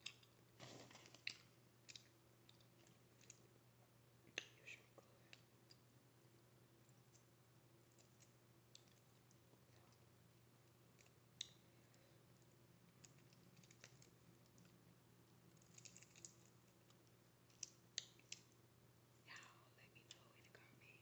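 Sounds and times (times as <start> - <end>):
person eating wet clicks: 0.0 - 0.4.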